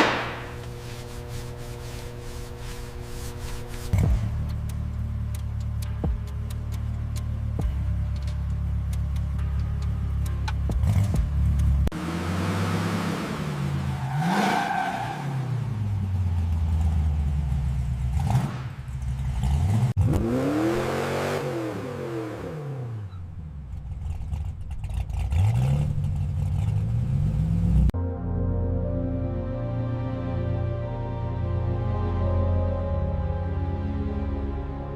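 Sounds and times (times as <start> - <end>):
music: 0.0 - 11.9, 28.0 - 34.9
car engine revving: 0.0 - 28.0.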